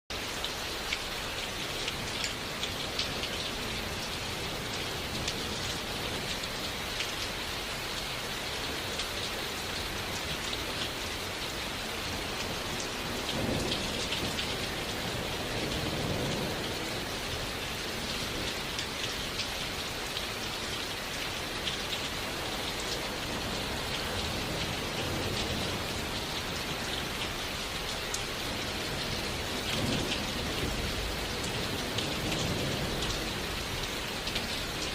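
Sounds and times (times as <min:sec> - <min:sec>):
rain drops tapping: 0:00.1 - 0:34.9
distant thunder rumble: 0:12.0 - 0:18.7.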